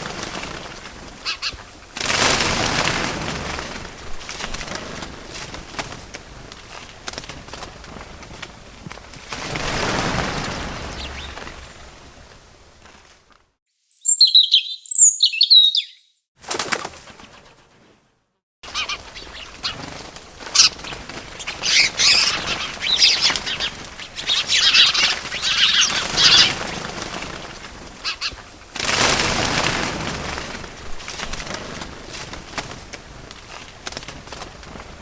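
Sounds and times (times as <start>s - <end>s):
wings flapping: 0.0s - 13.4s, 16.4s - 35.0s
birds chirping: 9.6s - 12.3s, 13.8s - 16.2s, 18.7s - 28.5s.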